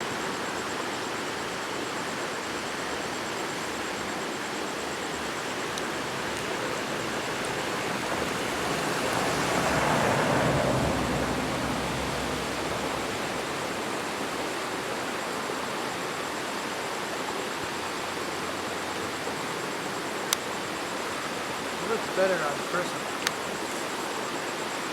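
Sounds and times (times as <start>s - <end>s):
waterfall rushing: 3.2s - 15.3s.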